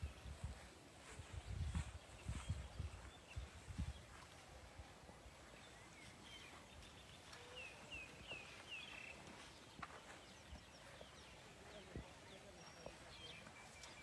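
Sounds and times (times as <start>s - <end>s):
small bird chirping: 5.5s - 14.0s.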